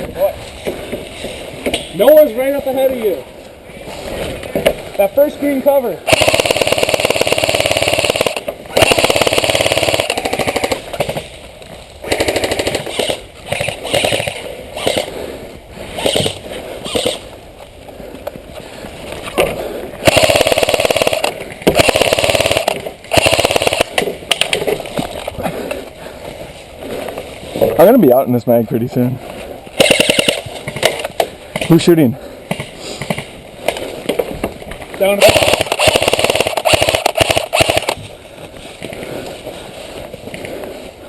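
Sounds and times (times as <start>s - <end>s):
airsoft rifle firing bursts: 6.0s - 11.2s, 12.0s - 15.1s, 16.0s - 17.2s, 20.0s - 24.2s, 29.8s - 31.0s, 35.1s - 38.0s.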